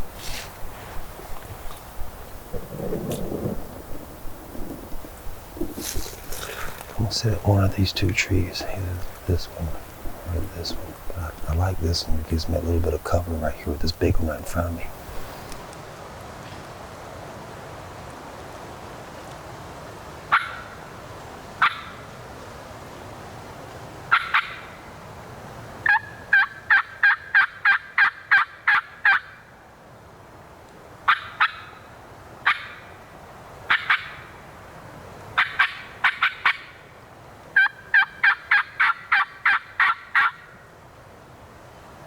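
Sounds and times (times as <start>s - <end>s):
turkey call yelps: 20.3s - 20.8s, 24.1s - 24.7s, 25.8s - 29.4s, 31.1s - 31.8s, 32.4s - 32.8s, 33.7s - 34.3s, 35.4s - 36.8s, 37.6s - 40.5s.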